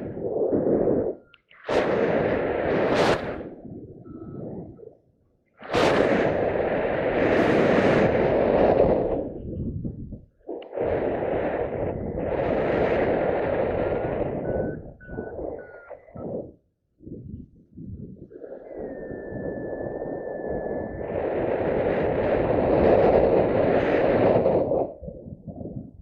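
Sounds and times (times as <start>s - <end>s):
wind buffeting microphone: 0.0s - 5.0s, 5.6s - 26.0s.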